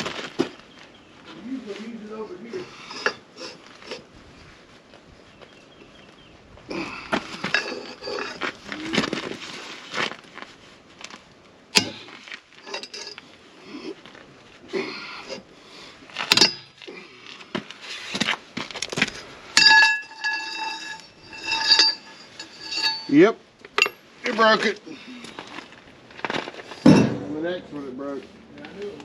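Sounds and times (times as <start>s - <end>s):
struck metal ringing: 11.7s - 12.1s, 16.3s - 16.8s, 19.6s - 23.2s, 26.8s - 27.6s.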